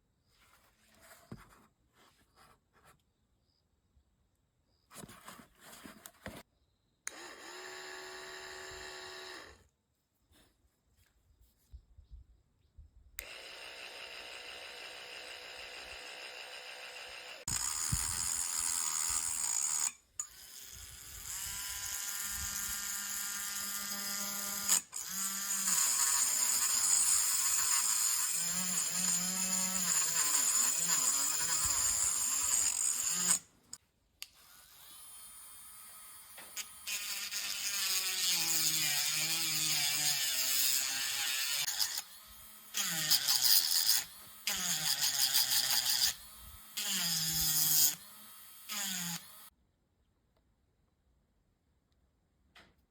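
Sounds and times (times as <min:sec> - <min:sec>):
small electric motor whirring: 0:07.1 - 0:09.7, 0:13.2 - 0:33.5, 0:34.3 - 0:49.5.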